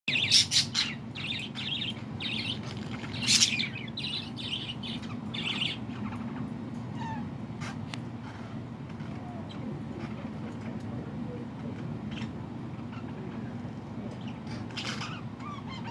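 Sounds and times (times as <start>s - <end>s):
small bird chirping: 0.1s - 7.2s
low steady hum: 0.1s - 15.9s.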